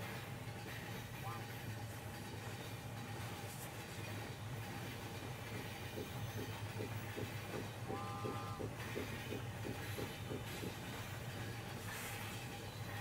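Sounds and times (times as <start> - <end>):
wheels clickety-clack: 4.8 - 11.0.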